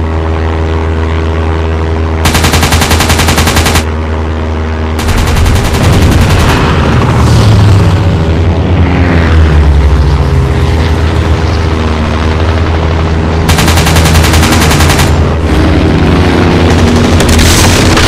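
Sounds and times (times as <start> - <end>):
propeller engine droning: 0.0 - 18.0
machine gun bursts: 2.2 - 3.9, 5.0 - 6.6, 13.5 - 15.2.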